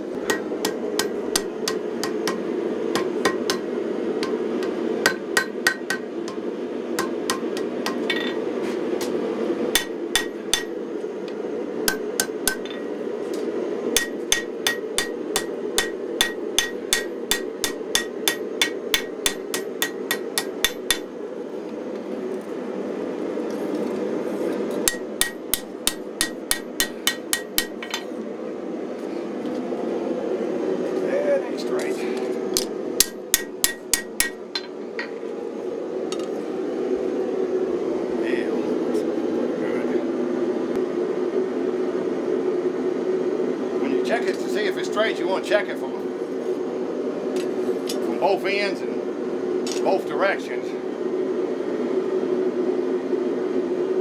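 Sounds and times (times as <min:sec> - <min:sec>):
gas forge rushing: 0:00.0 - 0:54.0
hammer ringing on anvil: 0:09.8 - 0:10.7, 0:14.0 - 0:21.0.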